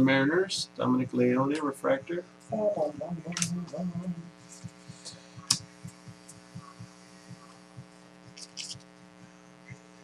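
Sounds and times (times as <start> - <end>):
electrical mains hum: 0.0 - 10.0
sharp clicks: 4.6 - 6.4
rustle of cards being handled: 8.3 - 8.9.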